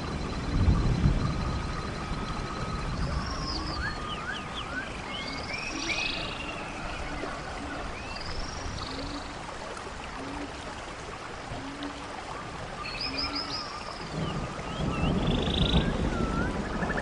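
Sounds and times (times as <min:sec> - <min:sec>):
steady background hiss: 0:00.0 - 0:17.0
birds chirping and whistling: 0:01.2 - 0:09.2, 0:12.8 - 0:16.8.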